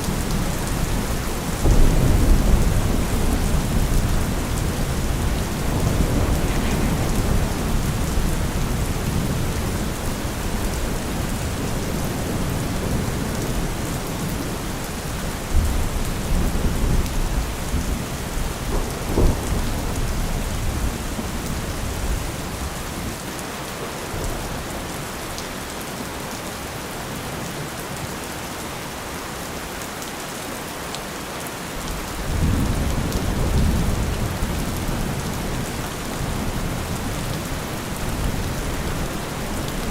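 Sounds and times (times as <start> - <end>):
rolling thunder: 0.0 - 23.2
rain falling: 0.0 - 39.9.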